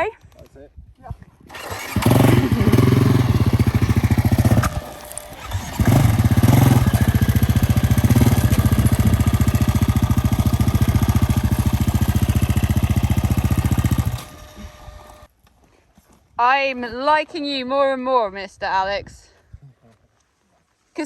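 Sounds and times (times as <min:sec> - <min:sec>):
motorcycle engine running: 0:01.5 - 0:15.3.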